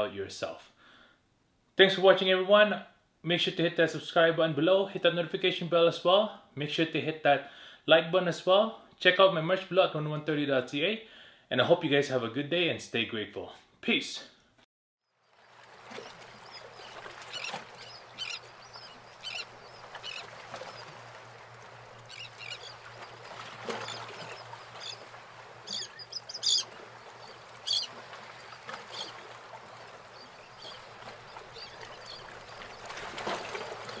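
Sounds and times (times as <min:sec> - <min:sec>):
birds chirping: 0:15.9 - 0:34.0.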